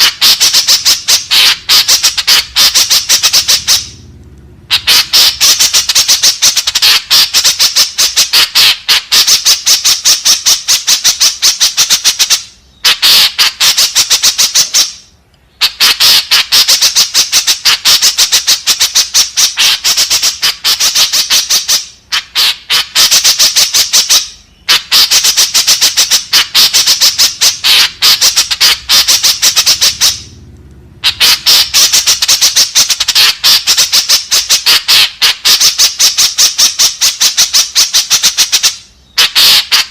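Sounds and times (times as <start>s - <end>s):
bird chattering squawks: 0.0s - 4.1s, 4.7s - 30.4s, 31.0s - 39.9s.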